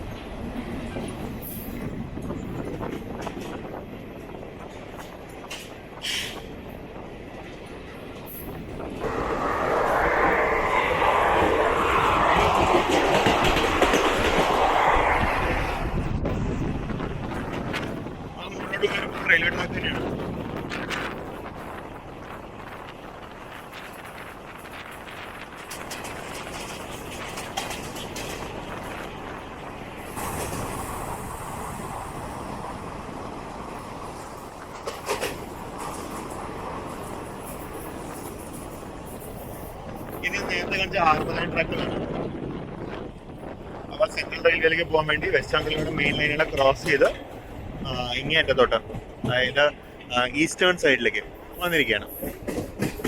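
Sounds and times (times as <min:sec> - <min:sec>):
train rattling on rails: 0:00.0 - 0:53.0
fast train wheel clicks: 0:12.1 - 0:15.4, 0:24.8 - 0:29.2, 0:34.4 - 0:36.4, 0:51.7 - 0:53.0
clatter of knocks: 0:52.2 - 0:53.0.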